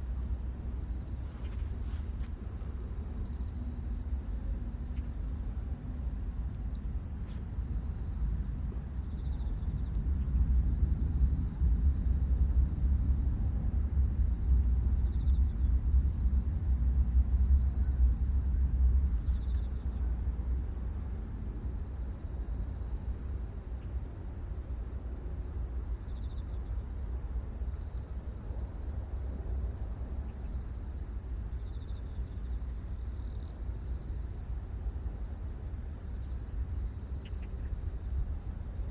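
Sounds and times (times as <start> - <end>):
wind rumble: 0.0 - 22.0
crickets trilling: 0.0 - 38.9
pulsing insect chirp: 30.2 - 38.9.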